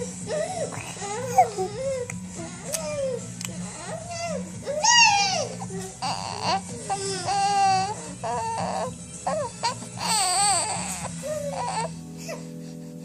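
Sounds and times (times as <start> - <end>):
baby squealing: 4.3 - 11.9.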